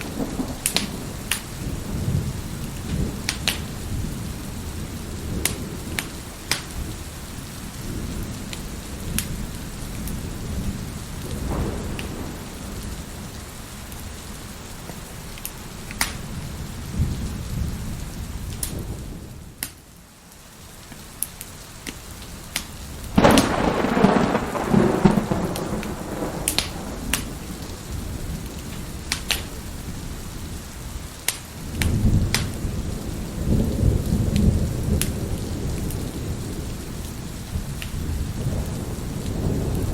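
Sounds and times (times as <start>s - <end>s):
wood fire crackling and popping: 0.0s - 1.5s, 2.7s - 3.7s, 5.4s - 6.8s, 14.9s - 16.2s, 20.9s - 27.5s, 28.5s - 29.6s, 31.2s - 32.6s
thunder rumbling: 0.0s - 14.2s, 23.1s - 39.9s
heavy rain: 0.0s - 39.9s.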